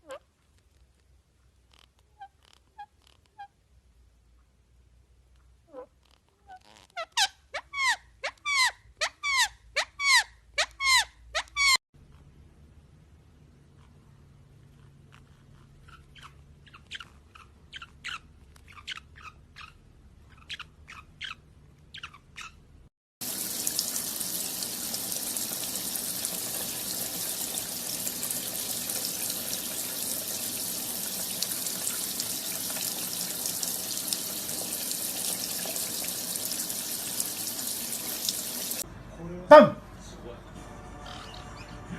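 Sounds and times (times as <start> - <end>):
small bird chirping: 15.2 - 22.6
water tap running into sink: 23.2 - 38.8.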